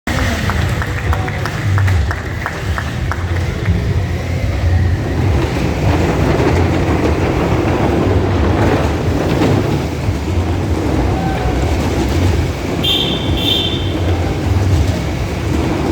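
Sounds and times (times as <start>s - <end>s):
motorcycle engines rumbling: 0.1s - 15.9s.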